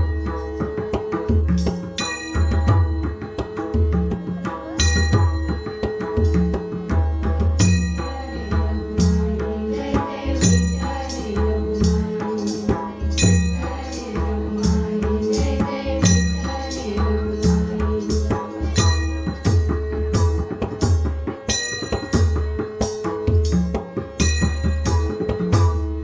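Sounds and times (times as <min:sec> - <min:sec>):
hand drum rhythm: 0:00.0 - 0:26.0
hand cymbals ringing: 0:01.9 - 0:03.7, 0:04.8 - 0:06.8, 0:07.6 - 0:09.4, 0:10.4 - 0:20.7, 0:21.5 - 0:26.0.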